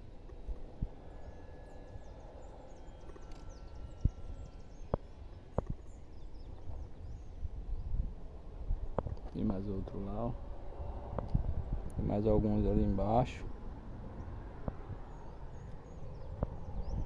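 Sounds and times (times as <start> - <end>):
faint high bird chirps: 0.0 - 8.1
wind rumble on microphone: 0.0 - 17.0.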